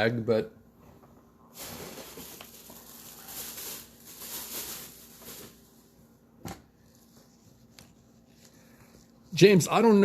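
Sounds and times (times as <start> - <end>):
packaging tearing and crinkling: 1.6 - 5.6.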